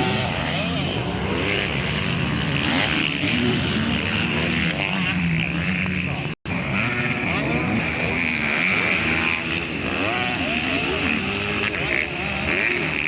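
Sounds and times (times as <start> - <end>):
motocross bikes revving: 0.0 - 13.0.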